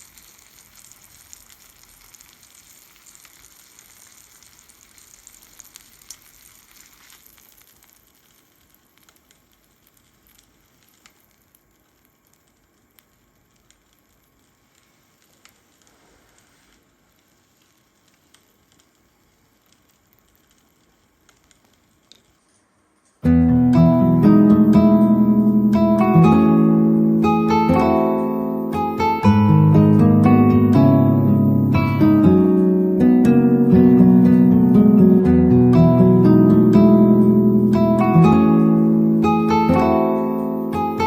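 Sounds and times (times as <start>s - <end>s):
food sizzling: 0.0s - 41.0s
acoustic guitar music: 23.2s - 41.0s.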